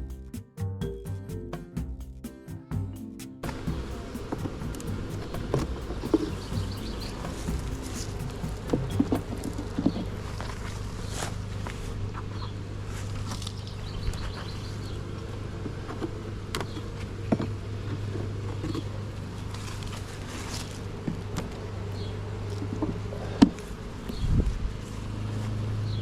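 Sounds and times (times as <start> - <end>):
honeybees buzzing: 3.4 - 9.5.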